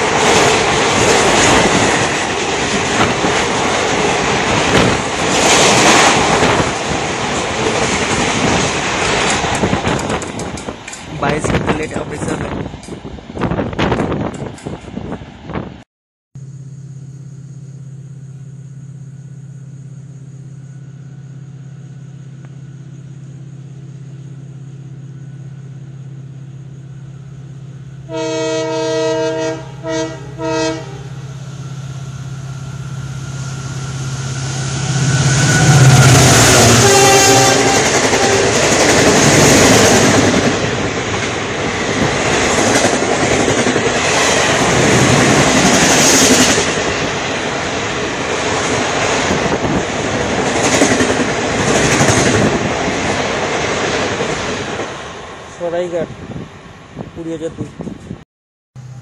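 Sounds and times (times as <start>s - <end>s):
train rumbling past: 0.0s - 15.8s, 16.4s - 58.2s, 58.8s - 59.0s
locomotive horn blasts: 28.0s - 31.2s, 35.2s - 38.6s.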